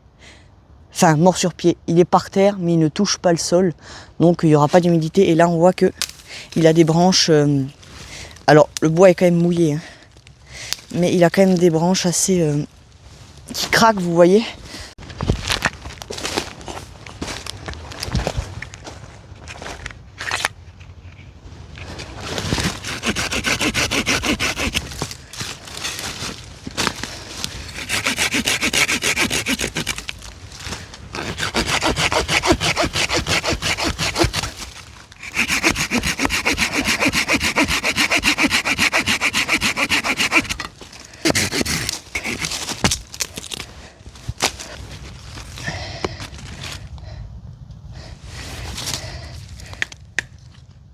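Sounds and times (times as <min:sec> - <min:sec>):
hand saw cutting branches: 0:22.0 - 0:43.7.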